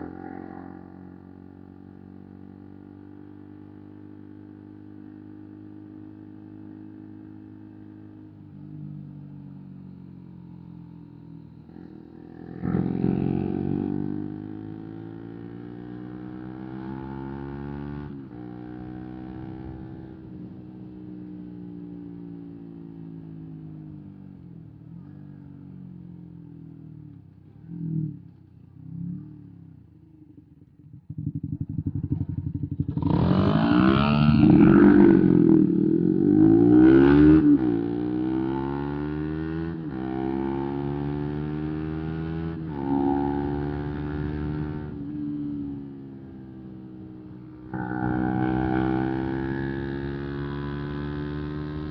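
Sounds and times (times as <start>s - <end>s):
motorcycle accelerating: 0.0s - 51.9s
motorcycle engines cruising: 0.0s - 51.9s
motorcycle engine running: 26.4s - 38.7s, 42.8s - 51.9s
loud pulsing exhaust revving: 47.5s - 51.9s.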